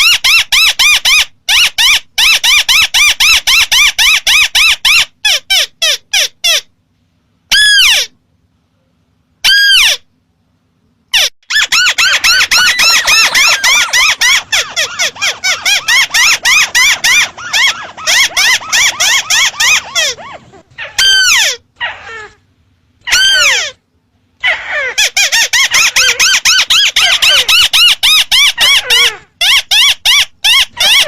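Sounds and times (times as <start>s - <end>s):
bird squeaky call runs: 11.2s - 21.6s
longer falling bird calls: 11.7s - 20.0s.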